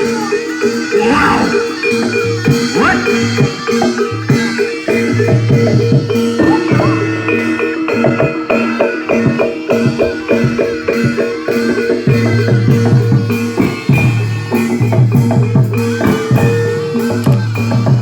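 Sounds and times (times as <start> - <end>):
fast drumming: 0.0 - 8.5
gamelan music: 0.0 - 18.0
struck metallophone notes: 0.0 - 18.0.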